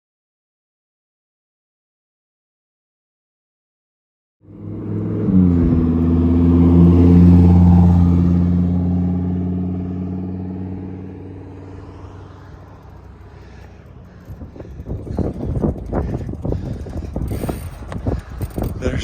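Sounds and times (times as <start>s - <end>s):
vehicle engine passing by: 4.4s - 19.0s.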